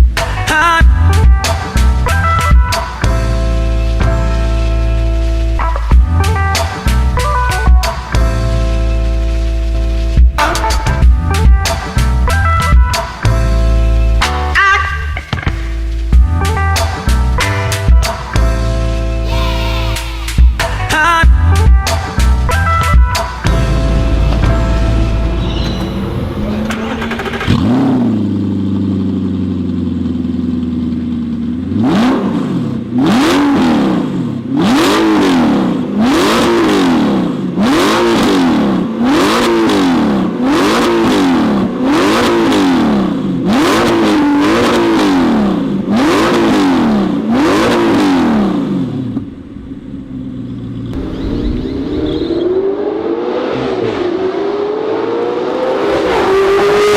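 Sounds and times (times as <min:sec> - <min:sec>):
sports car engine revving: 0:17.0 - 0:56.9.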